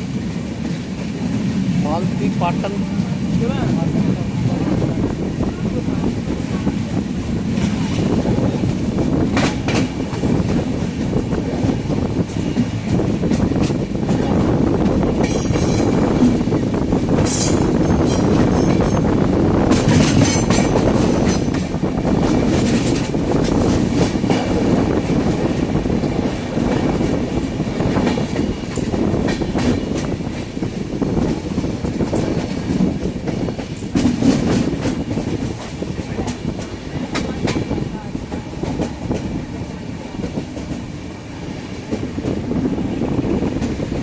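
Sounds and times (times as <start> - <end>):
passenger train rumbling: 0.0 - 44.0
wheels clattering over rail joints: 19.7 - 24.6.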